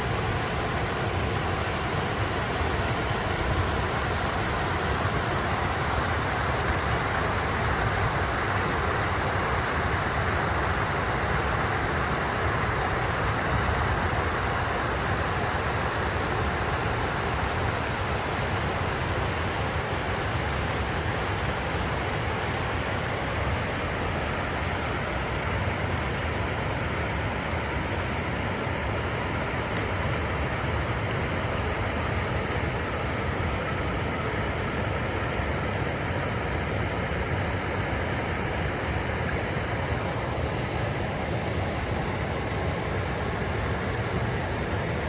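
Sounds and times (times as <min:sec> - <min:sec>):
stream rushing over stones: 0:00.0 - 0:24.6.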